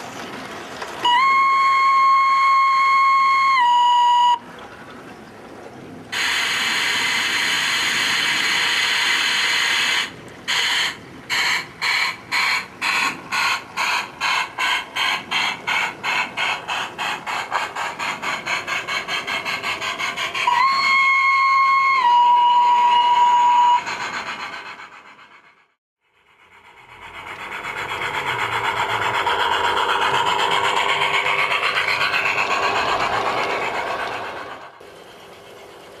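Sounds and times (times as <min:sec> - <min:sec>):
locomotive exhaust chuffs: 0:00.0 - 0:36.0
steam locomotive whistle: 0:01.0 - 0:04.5, 0:06.2 - 0:15.8, 0:19.1 - 0:24.2
steam hissing: 0:06.1 - 0:36.0.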